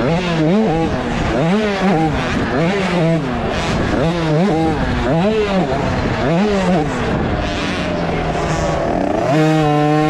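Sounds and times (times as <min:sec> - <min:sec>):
two-stroke engine revving: 0:00.0 - 0:10.0.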